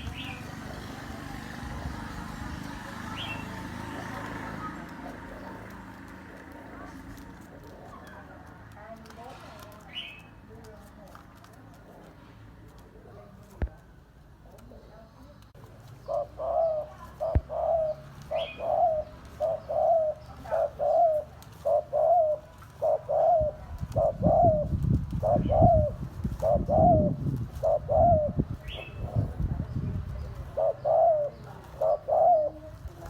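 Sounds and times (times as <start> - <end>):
dove cooing: 0.0 - 8.5, 15.9 - 33.0.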